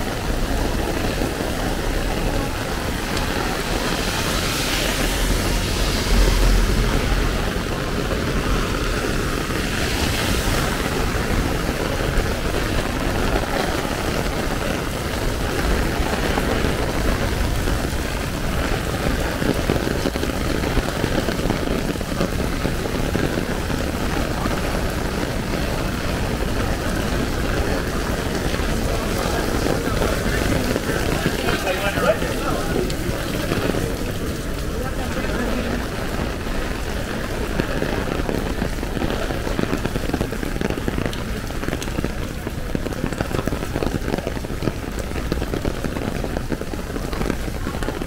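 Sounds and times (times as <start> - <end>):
city traffic: 0.0 - 48.0
heavy rain on an umbrella: 0.0 - 48.0
low rumble: 2.0 - 11.6.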